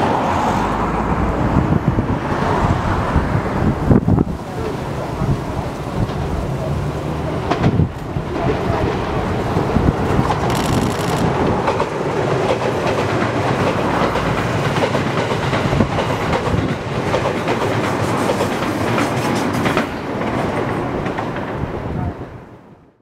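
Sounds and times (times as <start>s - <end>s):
train running rush: 0.0s - 22.7s
train wheels clicking over rail joints: 5.4s - 21.7s.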